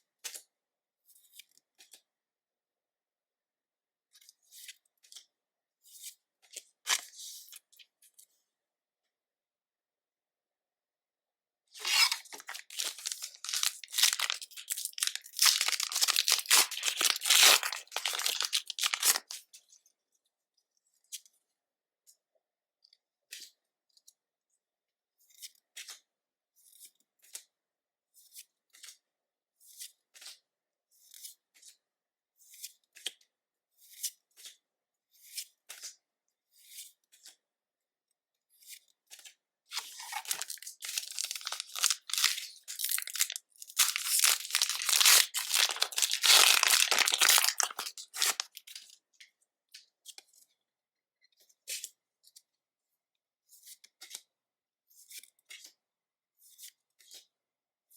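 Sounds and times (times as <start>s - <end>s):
foil wrapper tearing and crinkling: 11.8s - 19.4s, 39.7s - 48.8s.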